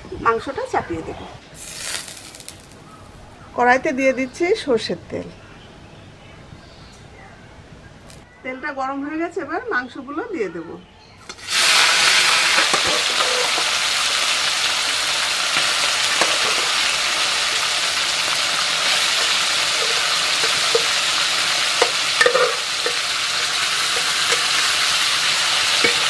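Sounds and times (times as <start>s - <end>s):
chicken sizzling in hot oil: 1.6s - 2.8s, 11.2s - 26.0s.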